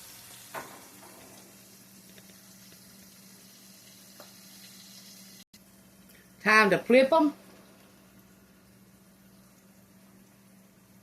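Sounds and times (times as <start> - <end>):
onion rings frying in oil: 0.0 - 11.0
low steady hum: 5.0 - 11.0.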